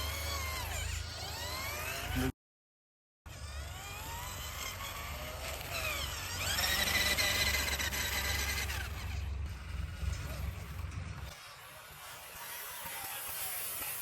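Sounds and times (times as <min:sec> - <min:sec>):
small electric motor whining: 0:00.0 - 0:02.4, 0:03.3 - 0:14.0.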